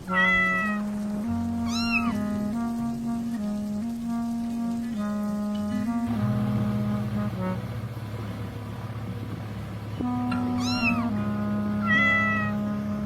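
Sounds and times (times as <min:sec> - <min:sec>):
cat meowing: 0:00.0 - 0:00.9, 0:01.6 - 0:02.2, 0:10.3 - 0:11.2, 0:11.8 - 0:12.6
music with held notes: 0:00.0 - 0:13.0.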